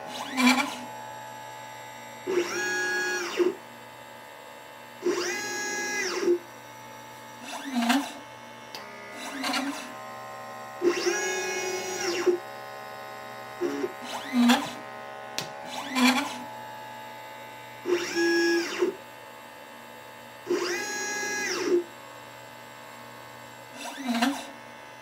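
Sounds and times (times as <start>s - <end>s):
stepper motor whine: 0.0s - 4.3s, 5.0s - 19.1s, 20.5s - 22.0s
machine hum: 0.0s - 19.0s.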